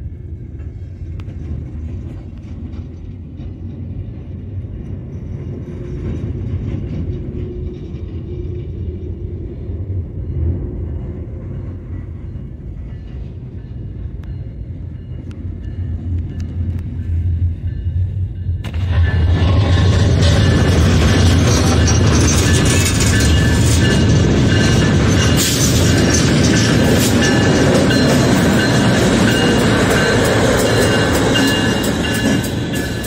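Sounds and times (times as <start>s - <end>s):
freight train rumbling: 0.0s - 33.0s
wheels and couplers clanking: 18.7s - 33.0s.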